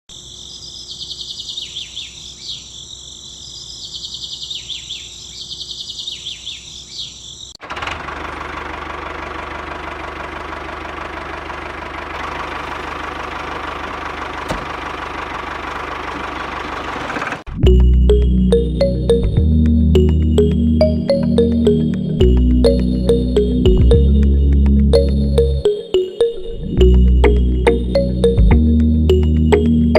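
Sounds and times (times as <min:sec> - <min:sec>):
engine running with low hum: 0:07.6 - 0:25.7, 0:26.6 - 0:29.9.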